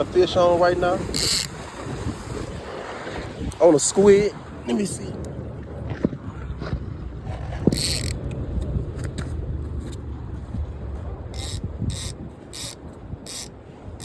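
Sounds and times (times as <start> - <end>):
surf rumble: 0.0 - 14.0
wind: 0.0 - 14.0
fishing reel whirring and clicking: 1.1 - 1.6, 7.7 - 8.2, 11.4 - 13.5
short high rasps: 11.4 - 13.5.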